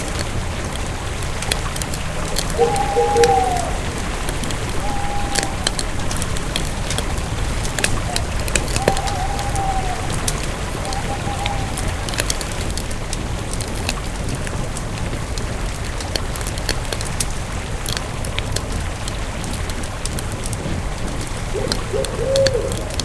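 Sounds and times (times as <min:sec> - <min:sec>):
campfire crackling: 0:00.0 - 0:23.0
faint thin whistling tone: 0:04.7 - 0:05.7.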